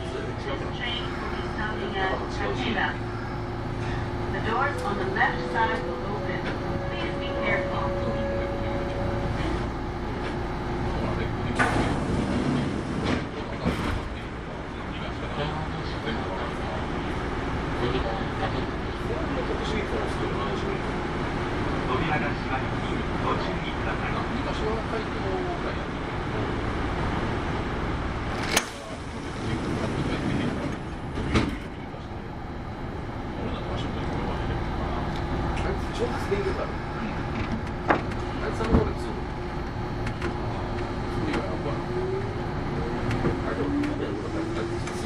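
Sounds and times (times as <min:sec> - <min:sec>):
train low rumble: 0:00.0 - 0:45.0
train doors closing: 0:00.8 - 0:14.2, 0:28.2 - 0:32.0.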